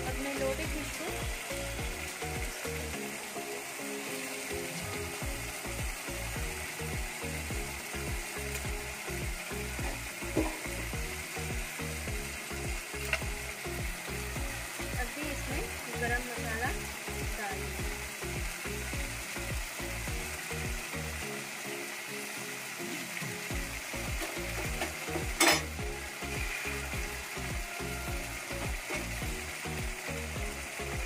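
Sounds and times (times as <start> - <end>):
gravy sizzling in a pan: 0.0 - 31.0
utensils clinking against pan: 24.2 - 25.8.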